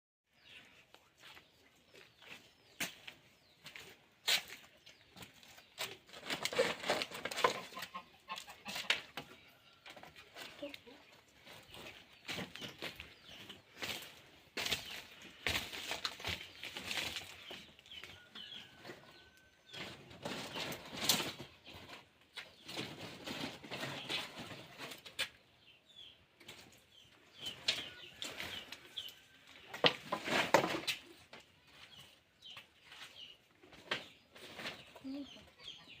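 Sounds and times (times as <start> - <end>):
dry brush rustling and crackling: 12.2 - 17.8.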